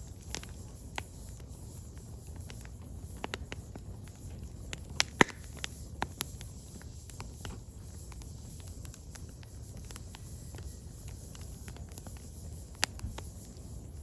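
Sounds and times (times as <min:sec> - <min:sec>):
firewood crackling and popping: 0:00.0 - 0:14.0
low rumble of fire: 0:00.0 - 0:14.0.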